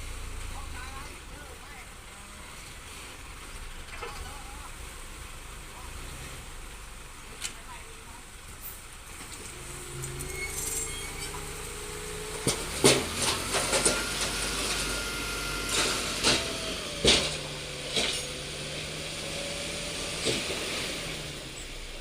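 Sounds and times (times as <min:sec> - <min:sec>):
diesel machinery running: 0:08.7 - 0:22.0.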